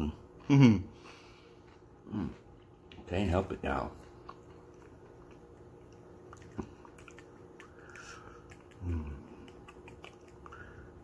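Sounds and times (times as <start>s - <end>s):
chewing chips: 3.9s - 11.0s
mouth clicks: 6.3s - 10.8s.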